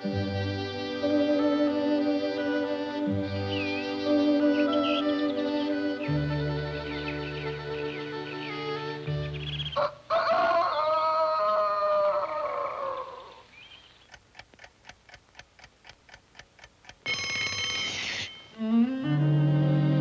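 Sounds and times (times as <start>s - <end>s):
orchestral music chord: 0.0s - 9.7s, 18.6s - 20.0s
clock ticking: 14.0s - 18.8s
alarm clock bell ringing: 17.0s - 18.7s.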